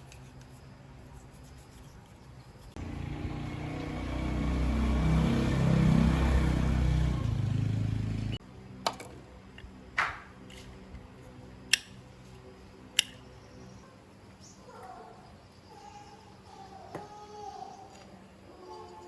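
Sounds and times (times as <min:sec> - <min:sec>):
motorcycle engine running: 0:02.8 - 0:08.4.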